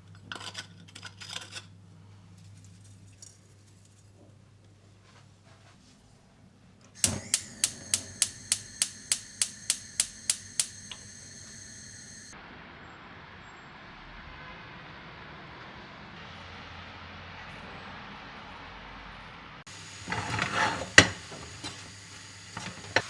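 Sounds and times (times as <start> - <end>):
sharp metallic ringing clicks: 7.0 - 11.1
steady hiss: 7.0 - 12.3.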